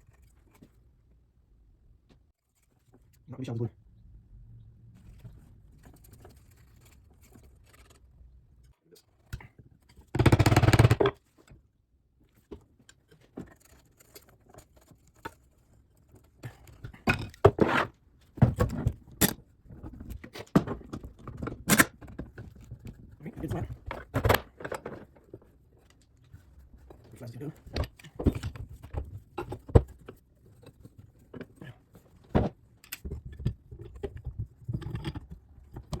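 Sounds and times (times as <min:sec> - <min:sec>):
clamps clicking and knocking: 0:10.2 - 0:11.2.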